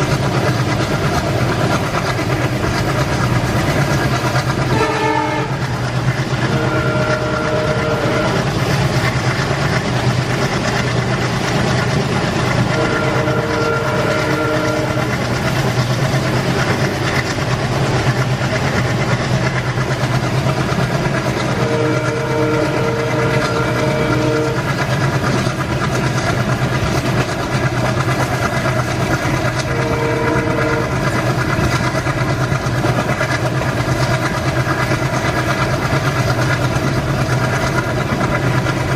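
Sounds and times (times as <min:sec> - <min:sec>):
train rumbling: 0:00.0 - 0:38.9
train horn chord: 0:04.7 - 0:05.6, 0:06.4 - 0:08.5, 0:12.7 - 0:15.2, 0:21.5 - 0:24.8, 0:29.6 - 0:31.1.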